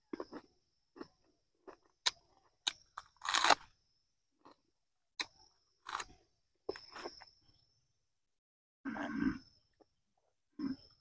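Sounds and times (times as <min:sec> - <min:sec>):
person chewing and crunching: 0:00.0 - 0:03.7, 0:05.2 - 0:07.2.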